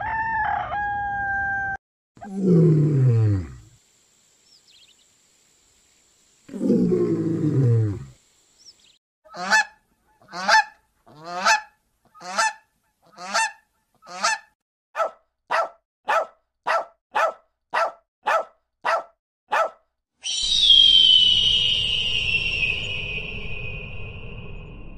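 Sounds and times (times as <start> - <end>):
swan honking: 9.3 - 14.5.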